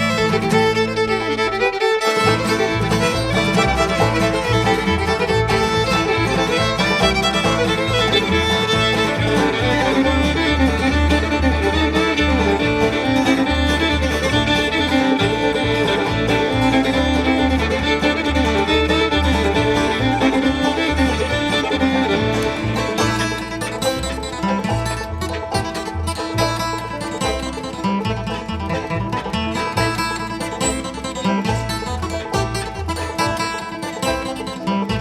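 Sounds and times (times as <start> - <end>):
banjo: 0.0 - 35.0
fiddle: 0.0 - 35.0
guitar: 0.0 - 35.0
low bass notes: 0.0 - 35.0.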